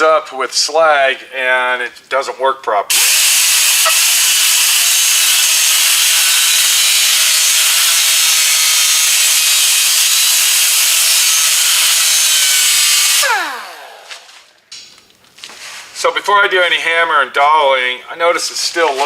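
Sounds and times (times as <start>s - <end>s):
electric grinder whining: 2.9s - 14.5s.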